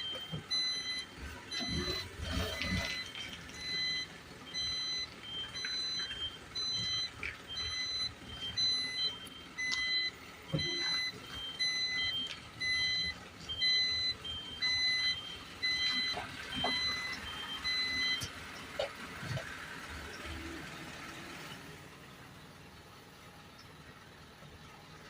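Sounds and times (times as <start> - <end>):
reversing alarm beeping: 0.0 - 18.9.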